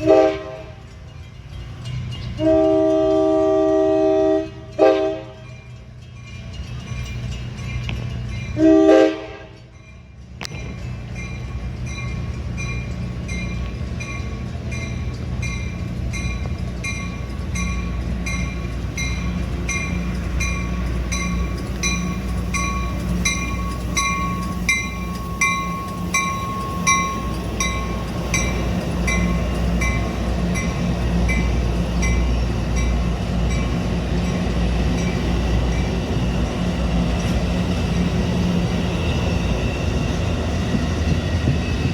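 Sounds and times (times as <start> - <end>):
locomotive horn blast: 0.0 - 0.9, 2.4 - 5.4, 8.6 - 9.6
crossing bell ringing: 0.0 - 41.9
train rumbling by: 0.0 - 41.9.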